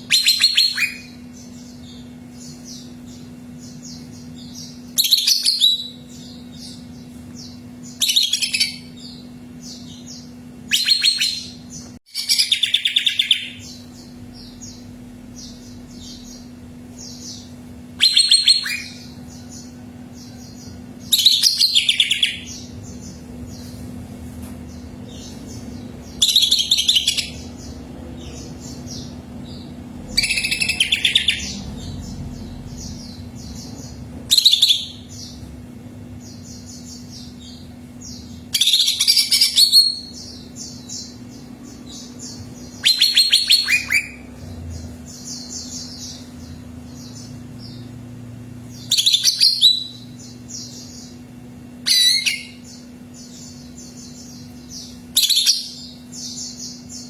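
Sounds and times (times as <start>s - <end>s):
bird singing loud phrases: 0.0s - 23.7s, 24.7s - 57.0s
steady low hum: 0.0s - 57.0s
soft high chirping: 25.0s - 35.4s.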